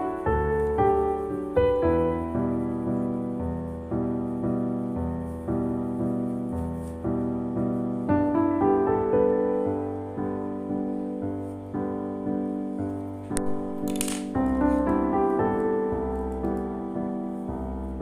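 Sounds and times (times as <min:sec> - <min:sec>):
slow gentle piano chords: 0:00.0 - 0:18.0.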